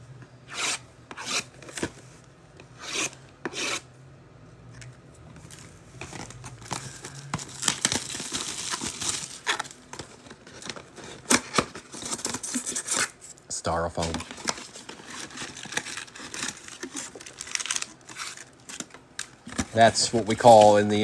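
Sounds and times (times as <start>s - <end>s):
cardboard packaging torn and rustled: 5.5s - 13.2s, 14.0s - 21.0s.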